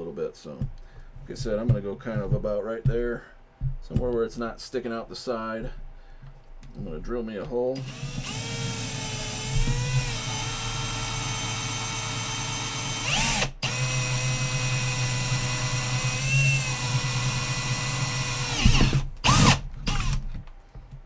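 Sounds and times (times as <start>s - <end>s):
cordless drill boring plastic: 7.8s - 20.2s.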